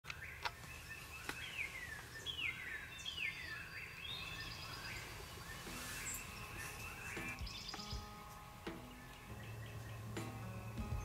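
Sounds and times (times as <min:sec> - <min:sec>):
songbirds whistling: 0:00.1 - 0:11.0.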